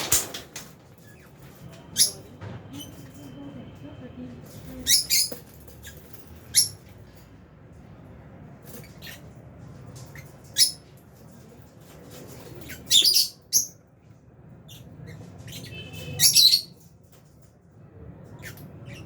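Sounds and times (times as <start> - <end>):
lovebirds chirping and squawking: 0.8 - 3.5, 4.4 - 7.3, 8.6 - 17.4, 18.2 - 19.0.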